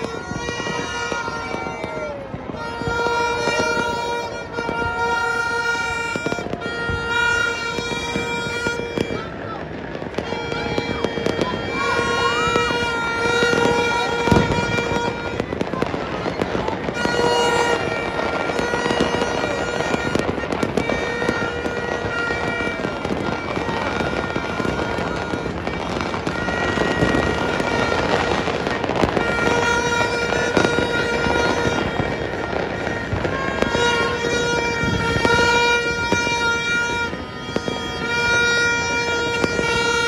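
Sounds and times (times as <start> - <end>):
firecrackers crackling: 0.0 - 40.0
firework bangs: 0.0 - 40.0.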